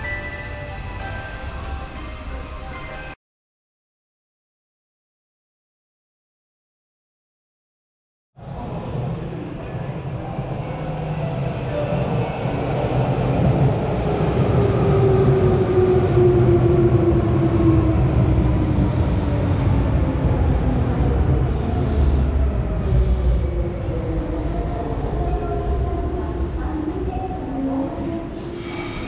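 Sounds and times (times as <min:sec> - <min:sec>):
electric train whine: 0:00.0 - 0:03.2.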